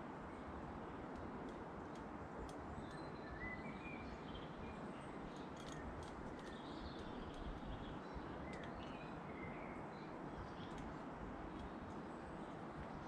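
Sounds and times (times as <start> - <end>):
light ticks: 1.0 - 3.1, 5.3 - 9.0, 10.6 - 12.0
small birds chirping: 2.5 - 13.0.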